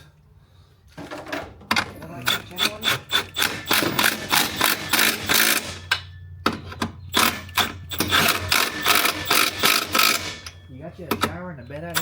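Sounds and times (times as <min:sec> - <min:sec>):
ratchet wrench rasping: 0:02.2 - 0:06.1, 0:07.0 - 0:12.0.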